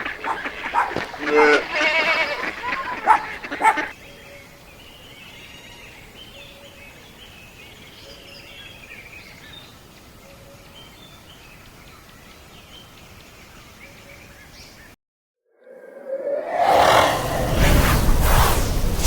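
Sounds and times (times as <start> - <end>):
birds chirping and calling: 0.0 - 4.4
outdoor ambience hiss: 0.0 - 14.9.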